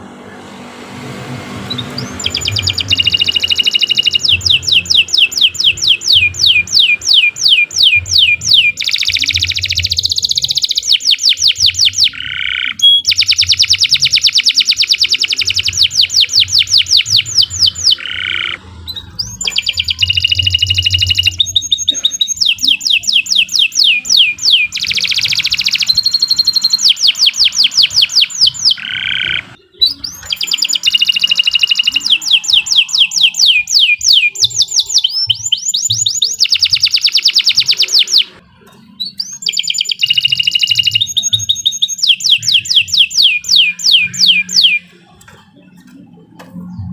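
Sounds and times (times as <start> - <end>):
canary singing fast trills: 1.6 - 45.8.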